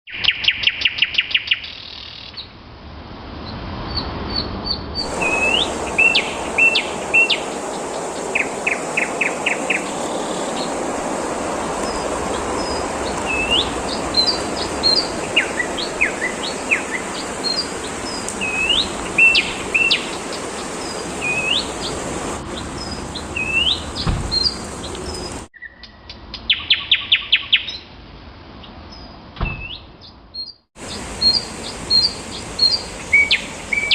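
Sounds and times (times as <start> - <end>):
songbirds calling and singing: 0.1 - 2.6, 3.4 - 27.9, 28.6 - 33.9
steady background noise: 5.0 - 23.2.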